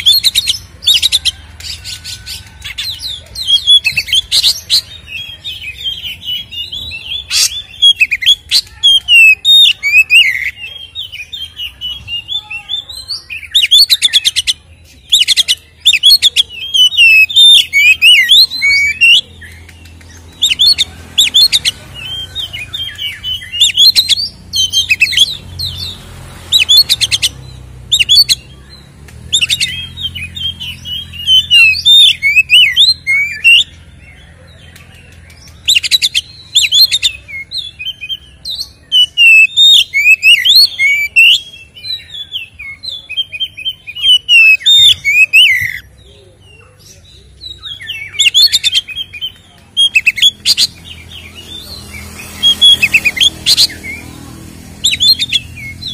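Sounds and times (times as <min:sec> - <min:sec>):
bird singing: 0:00.0 - 0:55.9.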